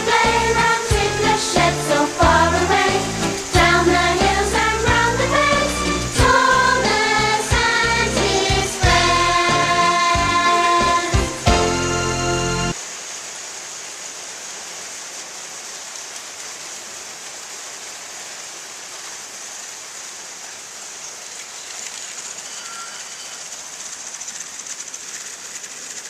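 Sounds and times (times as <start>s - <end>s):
steady hissing noise: 0.0s - 26.0s
music cue: 8.1s - 12.8s.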